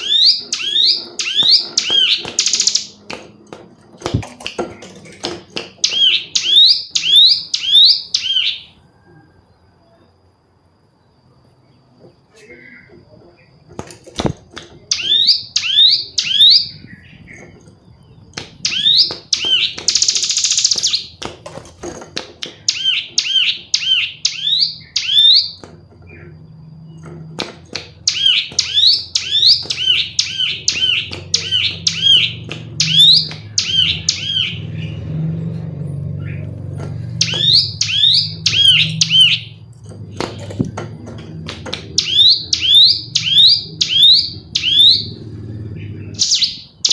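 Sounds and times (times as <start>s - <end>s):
bird high chirps: 0.0s - 3.0s, 5.8s - 9.2s, 14.8s - 21.2s, 22.5s - 27.1s, 27.8s - 35.1s, 36.1s - 39.7s, 41.8s - 46.9s.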